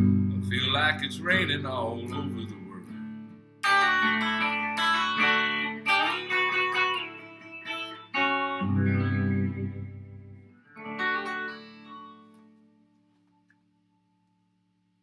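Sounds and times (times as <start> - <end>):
deep bass note: 0.0 - 2.4
guitar chords ringing: 0.0 - 13.0.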